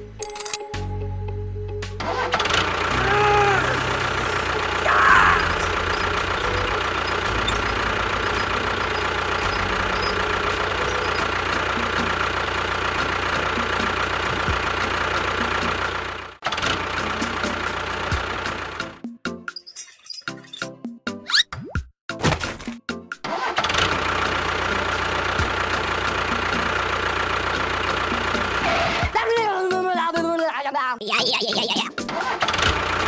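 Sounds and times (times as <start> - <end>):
tractor engine knocking: 3.6 - 18.8, 23.7 - 28.6.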